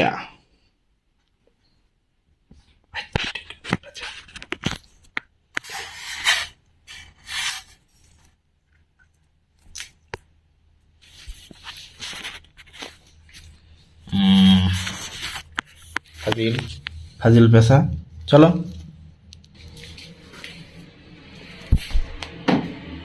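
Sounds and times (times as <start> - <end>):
owl hissing: 14.0 - 17.3
pitched voice-like sound: 14.1 - 15.1.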